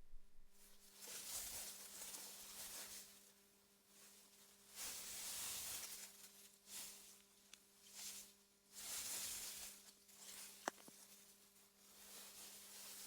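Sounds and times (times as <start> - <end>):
steady low hum: 0.0 - 0.7.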